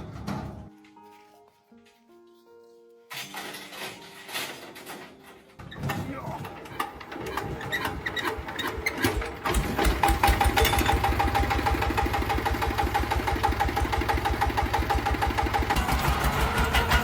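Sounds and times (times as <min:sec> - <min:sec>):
small engine idling: 0:06.4 - 0:17.0.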